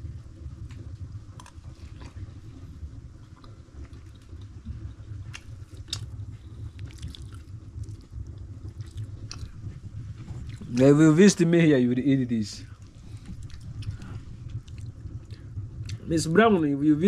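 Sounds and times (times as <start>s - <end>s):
low steady rumble: 0.0s - 17.0s
man chewing: 0.7s - 10.8s, 12.8s - 16.1s.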